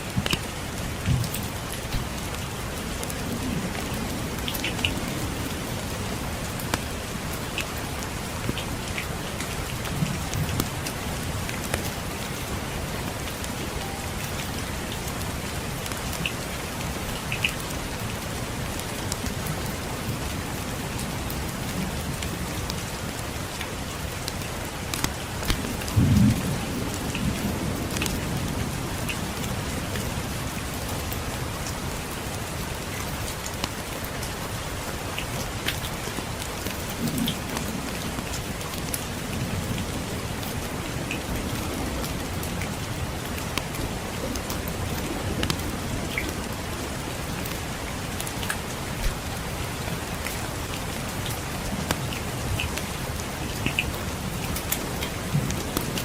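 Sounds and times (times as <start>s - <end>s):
steady rain: 0.0s - 56.0s
thunder rumbling: 25.6s - 30.4s.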